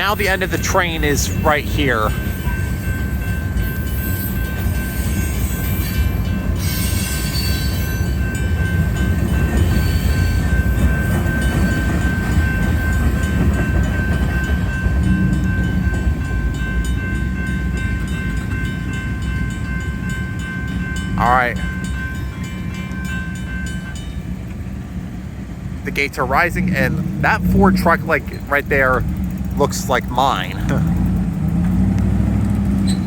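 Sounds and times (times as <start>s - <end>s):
steady high tone: 0.0s - 24.4s
train wheels rumbling on rail: 0.0s - 33.0s.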